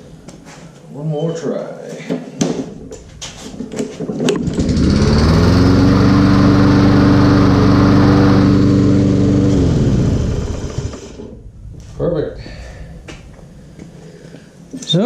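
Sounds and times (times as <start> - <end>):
lawn mower engine running: 3.5 - 11.4.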